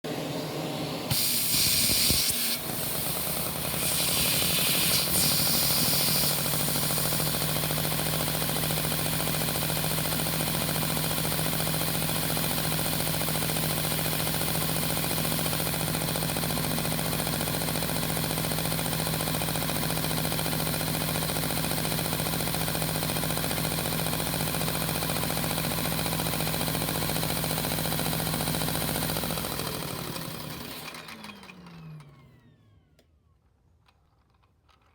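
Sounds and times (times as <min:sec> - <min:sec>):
rushing hiss of air: 0:01.1 - 0:06.4
toy vacuum engine humming: 0:01.1 - 0:09.6, 0:29.2 - 0:33.0.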